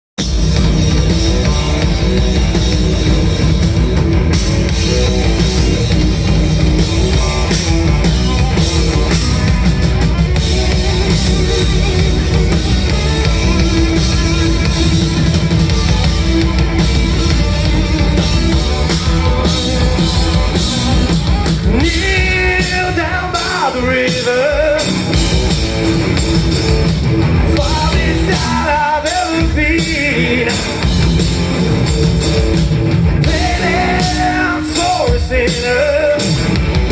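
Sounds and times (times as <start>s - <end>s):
bending lead guitar line: 0.2s - 36.9s
live rock band playing: 0.2s - 36.9s.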